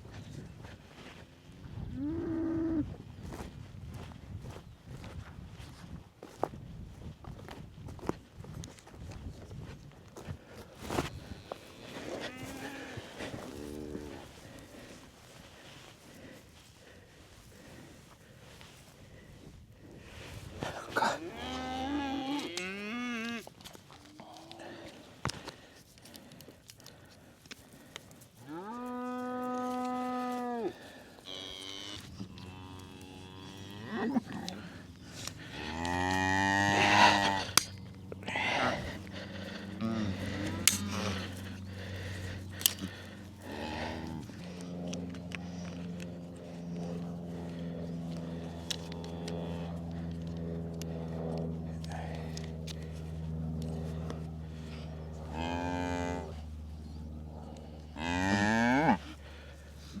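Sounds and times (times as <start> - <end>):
cattle mooing: 2.0 - 3.0, 11.2 - 14.4, 21.0 - 23.5, 28.4 - 51.0, 53.5 - 59.2
steady low hum: 10.0 - 60.0.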